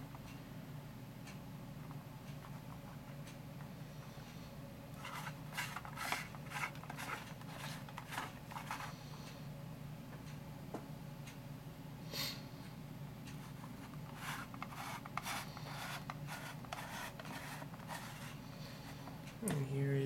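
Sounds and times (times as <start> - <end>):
steady low hum: 0.0 - 20.0
light rubs and scrapes: 5.0 - 9.0, 13.4 - 19.1.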